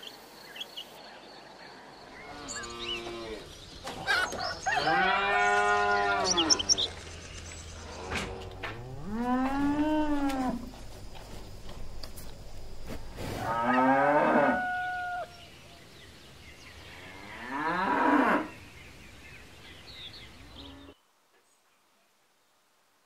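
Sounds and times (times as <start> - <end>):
cows mooing: 4.7 - 6.8, 7.9 - 10.7, 13.4 - 15.2.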